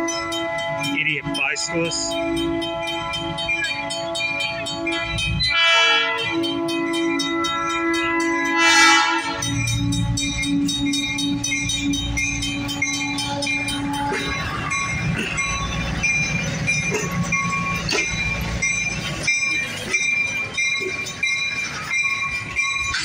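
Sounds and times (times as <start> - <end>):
locomotive horn: 0.0 - 11.4
crossing bells ringing: 0.0 - 23.0
train wheels clattering: 0.0 - 23.0
diesel engine low rumble: 9.3 - 23.0.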